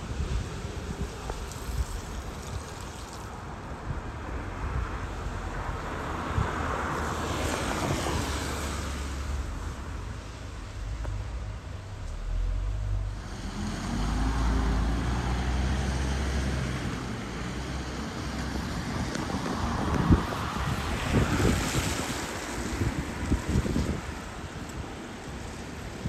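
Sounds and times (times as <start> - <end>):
tyre hiss on wet road: 0.0 - 26.0
wind thumps on microphone: 18.2 - 25.0.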